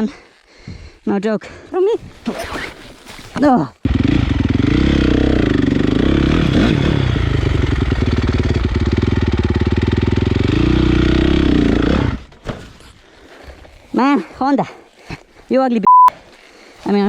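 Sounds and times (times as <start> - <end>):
dirt bike engine revving: 3.8 - 12.3.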